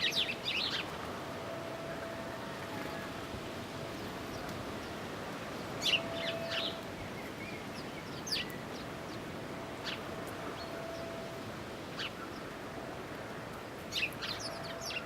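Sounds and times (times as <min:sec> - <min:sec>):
birds chirping: 0:00.0 - 0:00.9, 0:03.8 - 0:13.0, 0:13.6 - 0:15.0
steady outdoor hiss: 0:00.0 - 0:15.0.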